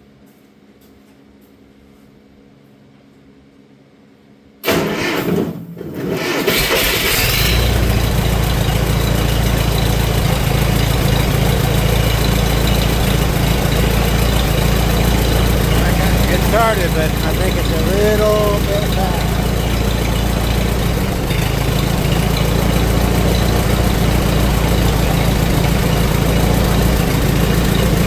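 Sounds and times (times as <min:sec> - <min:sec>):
tractor engine cranking: 0:04.6 - 0:28.0
tractor engine running: 0:06.3 - 0:28.0.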